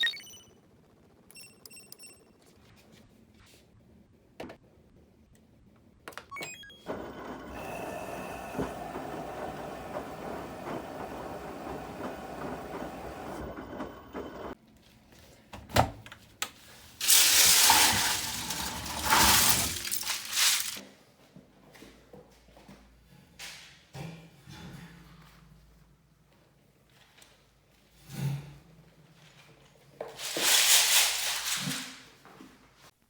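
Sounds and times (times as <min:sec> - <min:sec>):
plastic pieces clattering: 0:17.0 - 0:20.8, 0:30.2 - 0:32.0.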